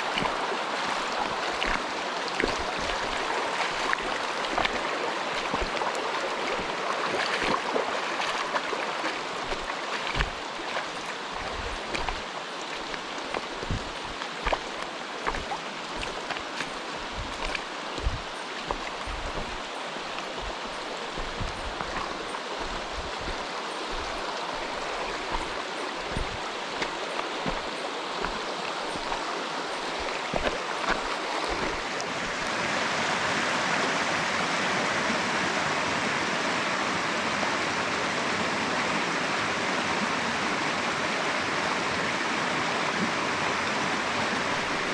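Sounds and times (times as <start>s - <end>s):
stream rushing over rocks: 0.0s - 44.9s
low thumps: 17.0s - 19.6s.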